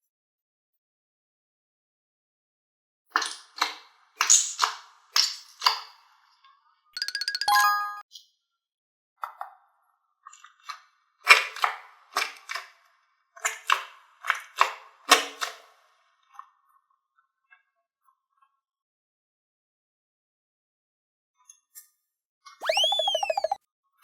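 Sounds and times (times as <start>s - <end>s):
electronic toy beeping: 7.0s - 8.0s, 22.6s - 23.6s.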